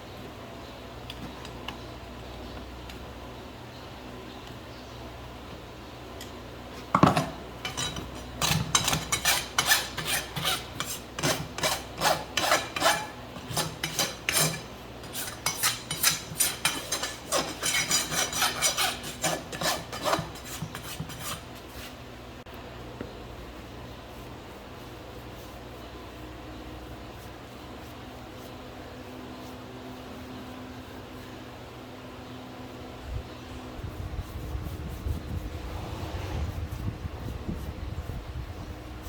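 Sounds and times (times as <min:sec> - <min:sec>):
rasp filing a hoof: 0:07.6 - 0:22.0.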